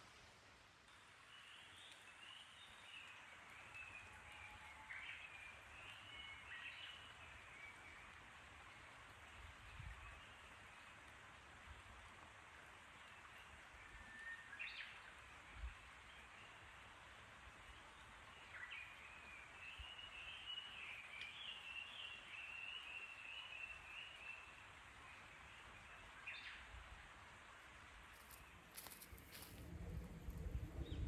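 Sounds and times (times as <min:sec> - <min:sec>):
outdoor background noise: 0:00.0 - 0:31.0
songbird warbling song: 0:18.4 - 0:24.5.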